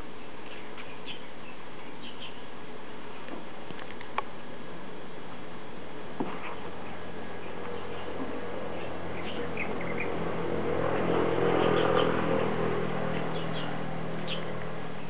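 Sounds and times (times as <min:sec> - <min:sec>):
birds chirping: 0:00.0 - 0:02.6, 0:06.2 - 0:15.0
outdoor background hum: 0:00.0 - 0:15.0
broad swell of noise: 0:04.4 - 0:15.0.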